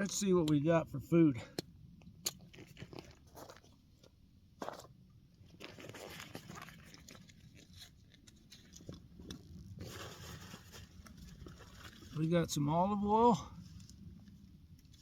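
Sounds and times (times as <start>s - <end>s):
plastic bags rustling: 9.8s - 12.2s.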